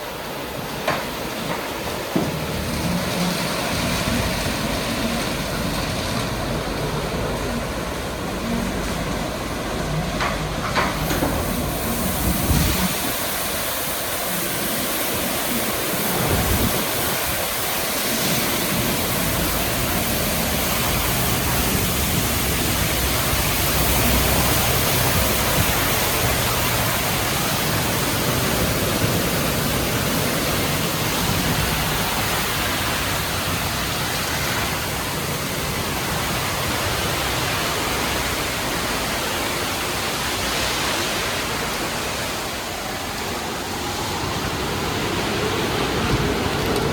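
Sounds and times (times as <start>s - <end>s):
water spray rushing: 0.0s - 46.9s
low machine rumble: 1.9s - 37.7s
hissing spray: 10.7s - 38.2s.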